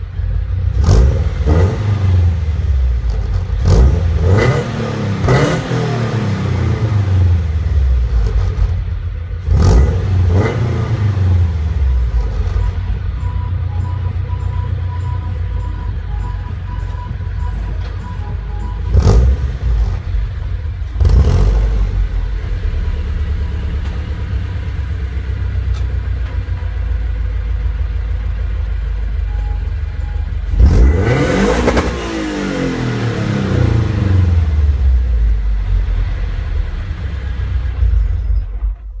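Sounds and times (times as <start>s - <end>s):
engine revving: 0.0s - 25.8s, 30.0s - 38.8s
car engine idling: 0.0s - 39.0s
throttle blips: 12.4s - 19.6s.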